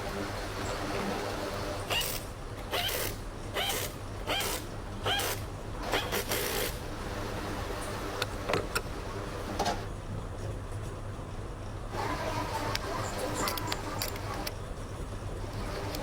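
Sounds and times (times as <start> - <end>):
metal parts rasping and clicking: 1.9 - 6.8, 12.1 - 14.6.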